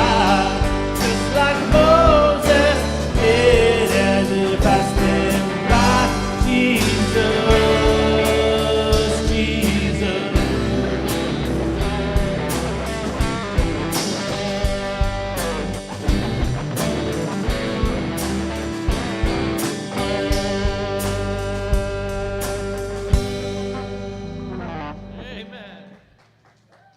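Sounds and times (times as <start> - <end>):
people singing: 0.0 - 12.0
live band playing: 0.0 - 26.0.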